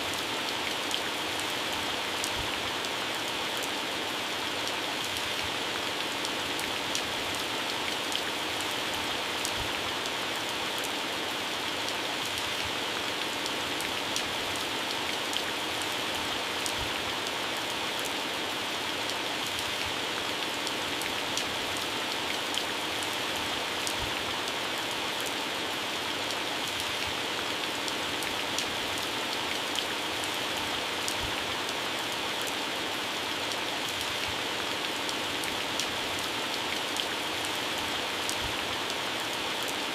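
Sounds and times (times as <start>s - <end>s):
heavy rain on plants: 0.0s - 39.9s.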